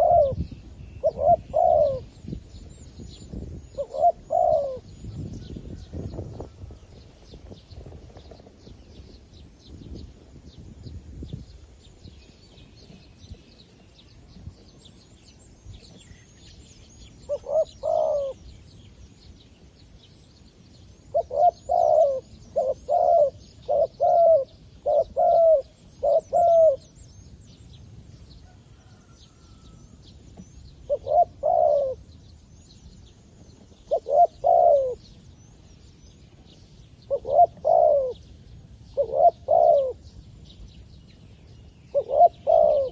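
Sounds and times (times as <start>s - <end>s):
dove cooing: 0.0s - 2.2s, 3.6s - 5.0s, 17.2s - 18.4s, 21.1s - 27.0s, 30.8s - 32.1s, 33.8s - 35.0s, 37.1s - 38.3s, 38.9s - 40.0s, 41.9s - 42.9s.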